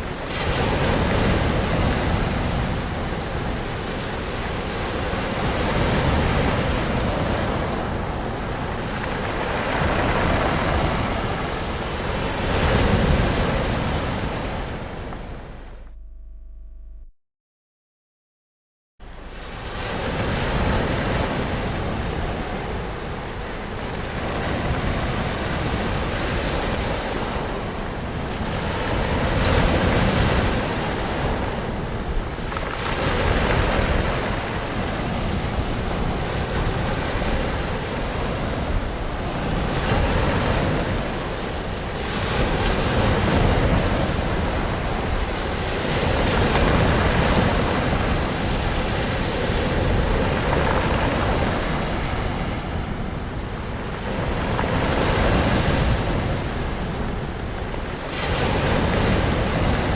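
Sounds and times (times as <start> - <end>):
ocean waves washing in: 0.5 - 15.8.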